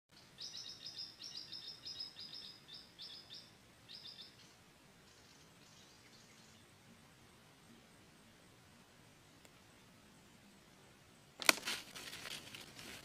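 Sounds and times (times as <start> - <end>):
bird chirping: 0.1 - 8.3.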